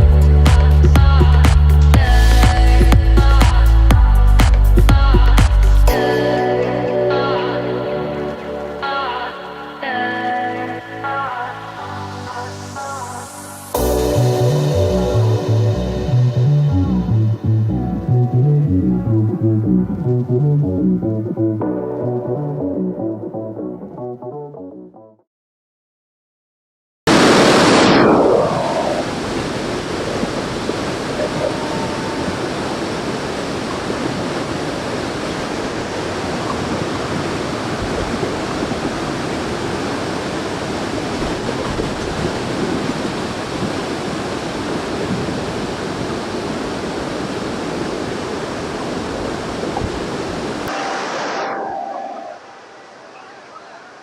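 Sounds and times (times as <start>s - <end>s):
waterfall rushing: 5.5s - 19.6s, 27.1s - 54.0s.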